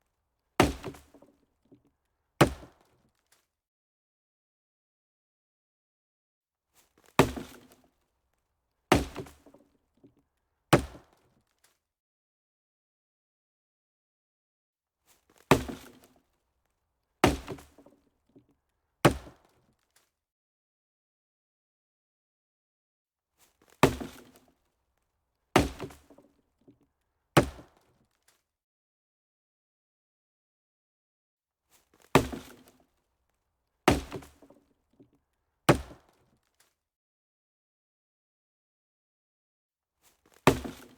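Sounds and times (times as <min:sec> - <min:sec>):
sharp chopping knocks: 0:00.6 - 0:01.1, 0:02.4 - 0:02.7, 0:07.2 - 0:07.7, 0:08.9 - 0:09.5, 0:15.5 - 0:16.0, 0:17.2 - 0:17.8, 0:19.1 - 0:19.4, 0:23.8 - 0:24.4, 0:25.6 - 0:26.1, 0:27.4 - 0:27.7, 0:32.2 - 0:32.7, 0:33.9 - 0:34.5, 0:35.7 - 0:36.0, 0:40.5 - 0:40.9.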